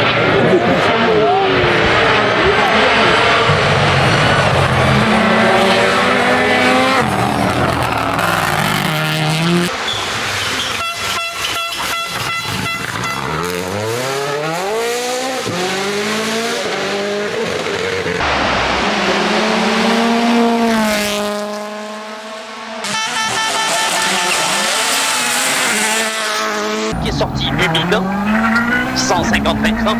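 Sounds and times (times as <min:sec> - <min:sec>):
rally car engine at full throttle: 0:00.0 - 0:29.9.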